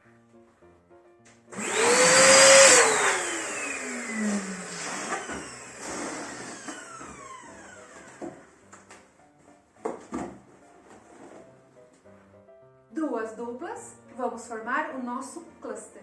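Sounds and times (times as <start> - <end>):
electric balloon inflator whine: 1.5 - 8.7.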